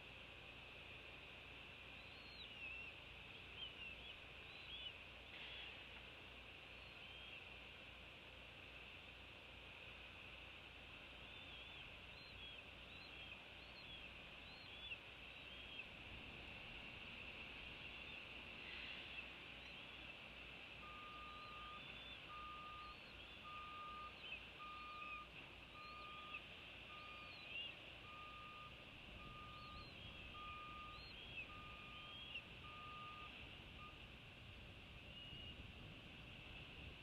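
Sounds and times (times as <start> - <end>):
steady high hiss: 0.0 - 37.0
vehicle reversing beeper: 20.8 - 34.0.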